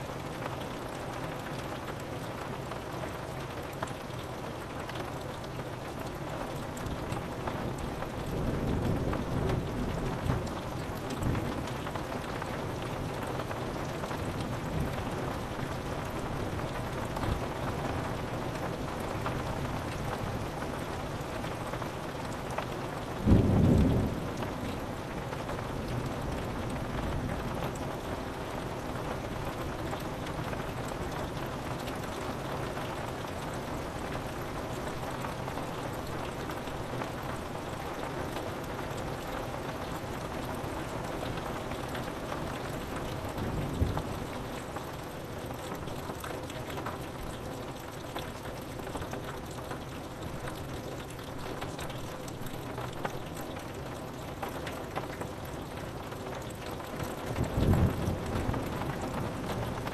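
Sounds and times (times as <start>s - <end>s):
rain falling on a window: 0.0s - 59.9s
low rolling thunder: 23.2s - 25.0s, 57.3s - 59.9s.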